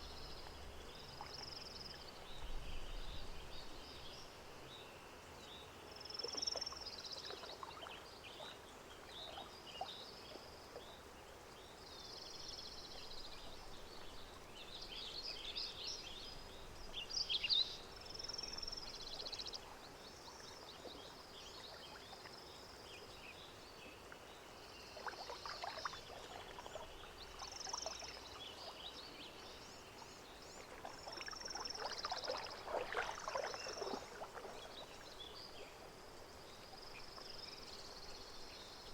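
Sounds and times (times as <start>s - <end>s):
soft hiss: 0.0s - 38.9s
water lapping and splashing: 6.2s - 11.0s, 24.9s - 38.0s.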